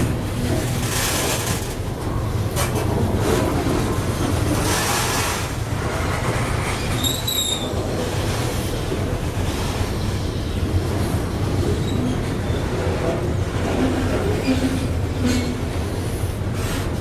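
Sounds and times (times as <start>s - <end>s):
wheels rumbling on rail: 0.0s - 17.0s
high-pitched wheel squeal: 7.0s - 7.7s.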